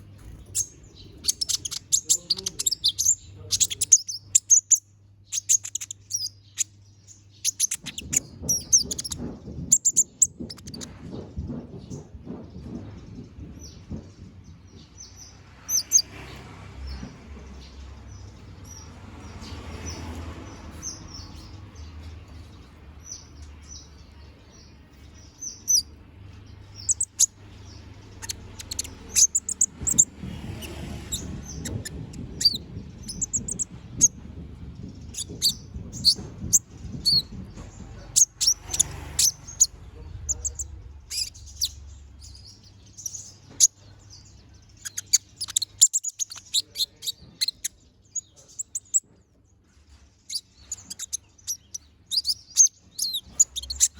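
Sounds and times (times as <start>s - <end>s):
bird chirping and trilling: 0.0s - 12.4s, 14.6s - 16.2s, 16.9s - 49.2s, 50.2s - 53.9s
faint low rumble: 16.9s - 44.9s.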